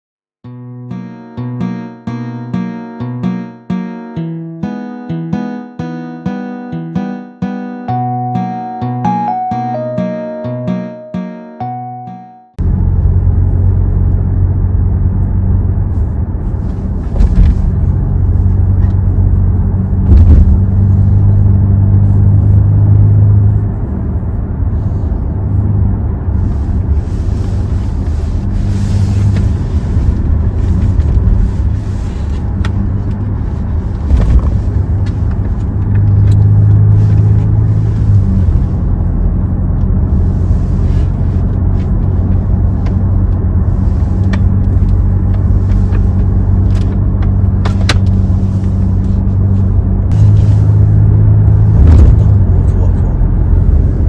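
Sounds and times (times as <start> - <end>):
road noise: 11.6 - 54.0
car engine and exhaust drone: 12.5 - 54.0.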